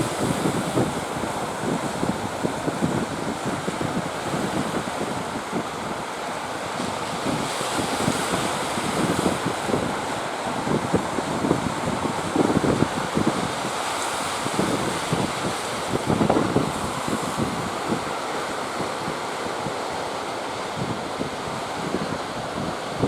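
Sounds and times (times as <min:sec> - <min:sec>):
sea surf: 0:00.0 - 0:23.0
wind buffeting microphone: 0:00.0 - 0:23.0.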